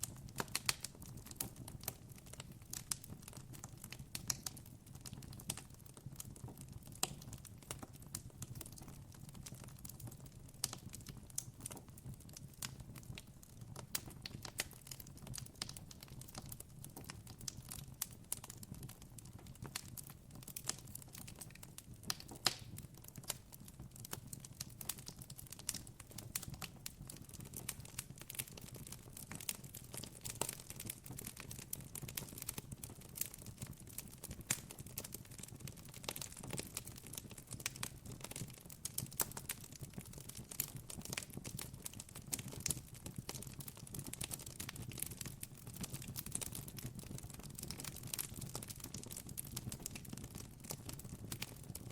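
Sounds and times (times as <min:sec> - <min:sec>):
campfire crackling: 0:00.0 - 0:04.6, 0:13.8 - 0:50.0.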